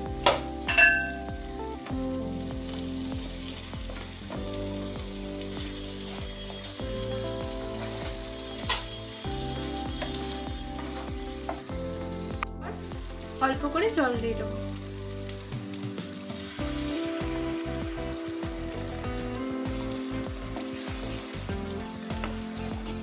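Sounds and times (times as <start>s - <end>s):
prawns sizzling in gravy: 0.0s - 23.0s
spatula clinking on pan: 0.7s - 1.3s.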